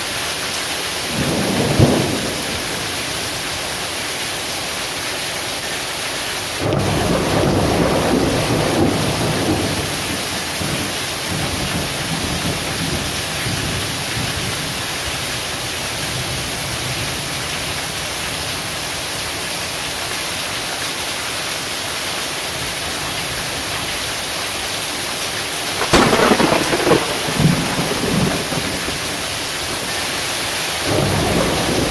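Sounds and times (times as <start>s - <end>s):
heavy rain pouring: 0.0s - 31.9s
thunder rumbling: 1.1s - 3.3s, 6.6s - 14.5s, 25.7s - 31.9s
sharp thunderclap: 6.6s - 13.0s, 25.8s - 30.1s, 30.8s - 31.9s.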